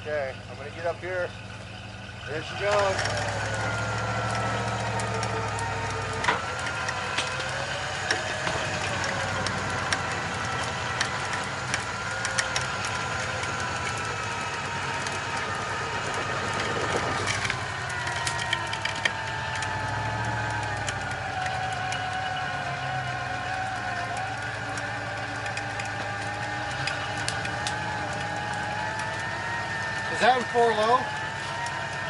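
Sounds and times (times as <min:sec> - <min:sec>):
electric winch whining: 0:00.0 - 0:32.0
sharp clicks and snaps: 0:16.5 - 0:30.0.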